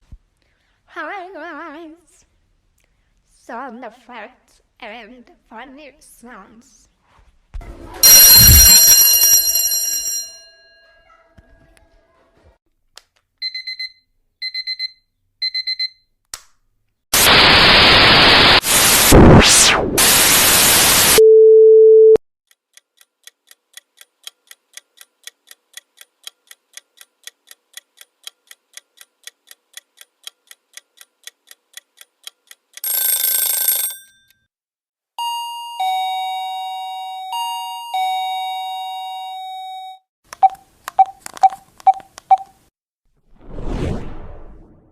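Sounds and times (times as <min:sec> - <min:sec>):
short two-tone beeps: 0:08.0 - 0:09.0, 0:13.4 - 0:16.0, 0:21.2 - 0:22.2
bright ringing chime: 0:08.0 - 0:10.7, 0:35.2 - 0:40.0
ding-dong chime: 0:08.0 - 0:11.2, 0:35.2 - 0:40.0
loud static noise: 0:17.2 - 0:21.2
even ticking: 0:22.5 - 0:32.9.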